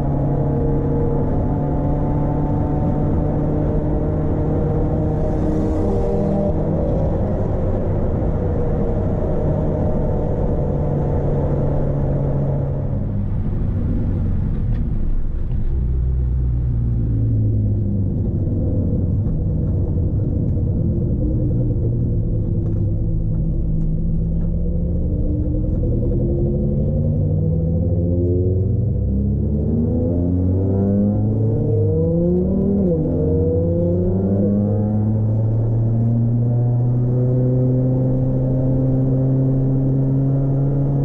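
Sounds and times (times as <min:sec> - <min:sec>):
car engine running: 0:00.0 - 0:29.0
road rumble: 0:00.0 - 0:41.0.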